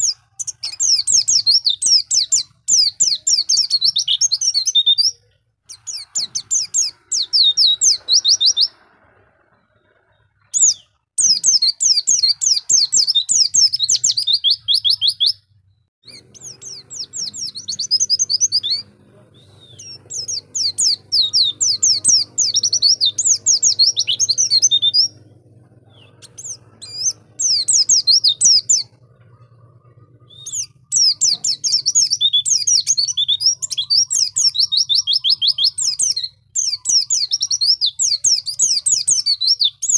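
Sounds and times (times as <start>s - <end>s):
bird chirping high-pitched: 0.0s - 39.9s
faint low hum: 15.4s - 33.8s.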